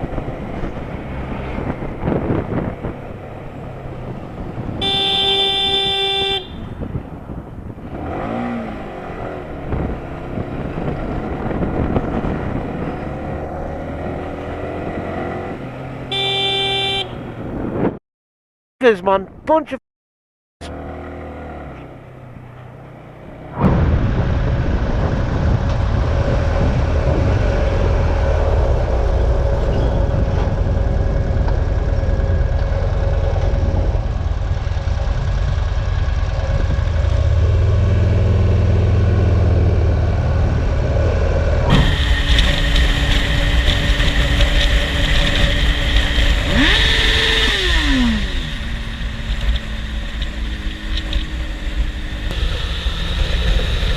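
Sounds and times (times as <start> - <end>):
motorcycle engine running: 30.0 - 53.9
wind rushing past: 40.1 - 53.9
steady tone: 41.7 - 53.9.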